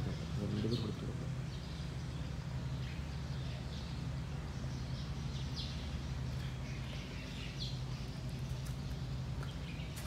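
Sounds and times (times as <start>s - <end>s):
small birds chirping: 0.0s - 10.0s
steady low hum: 0.0s - 10.0s.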